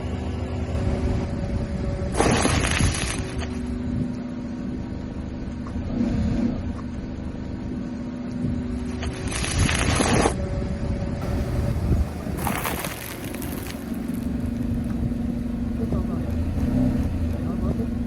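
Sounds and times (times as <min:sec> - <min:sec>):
loud crunching noise: 0:02.2 - 0:03.6, 0:11.2 - 0:15.4
machine humming: 0:11.2 - 0:18.0.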